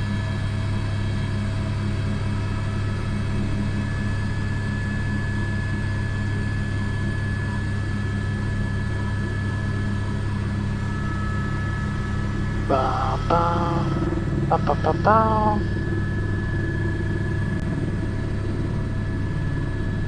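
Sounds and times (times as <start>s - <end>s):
helicopter engine drone: 0.0s - 20.0s
high whine: 10.8s - 18.3s.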